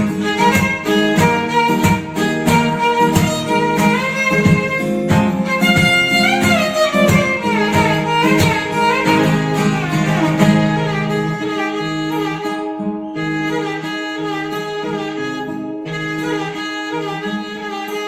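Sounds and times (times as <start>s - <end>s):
plucked string accompaniment: 0.0s - 18.0s
violin melody with sliding notes: 0.0s - 18.0s.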